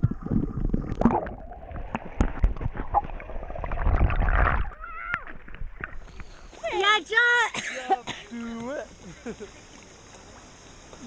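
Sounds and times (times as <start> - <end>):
sea water gurgling and splashing: 0.0 - 6.0.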